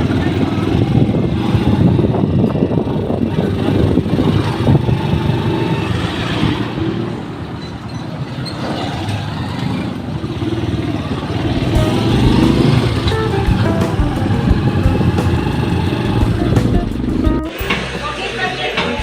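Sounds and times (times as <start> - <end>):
road noise: 0.0 - 19.0
vehicle engine running: 10.2 - 18.5.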